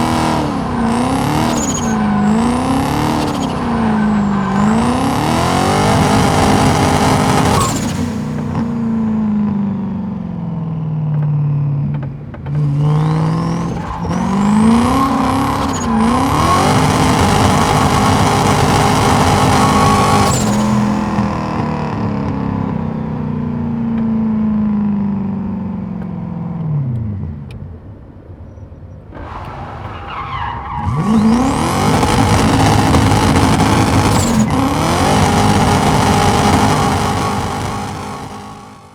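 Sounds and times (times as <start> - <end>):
tyres squealing: 0.0 - 8.9, 12.7 - 21.6, 29.2 - 38.8
car engine revving hard: 0.0 - 9.5, 12.6 - 22.1, 30.4 - 38.9.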